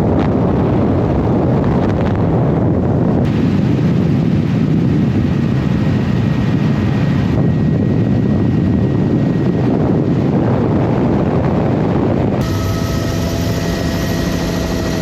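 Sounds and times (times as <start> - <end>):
faint high whine: 12.4 - 15.0
vehicle engine running: 12.4 - 15.0.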